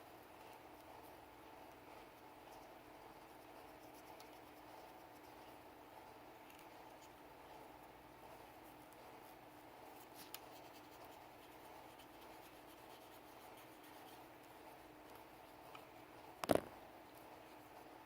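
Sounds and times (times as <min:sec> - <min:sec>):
soft rubbing and scratching: 0:01.9 - 0:05.7, 0:06.5 - 0:16.4.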